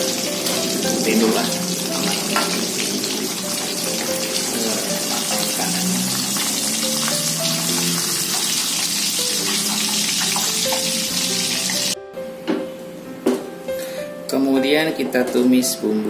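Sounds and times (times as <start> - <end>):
hot oil sizzling in a wok: 0.0 - 12.0
background music: 0.0 - 16.0.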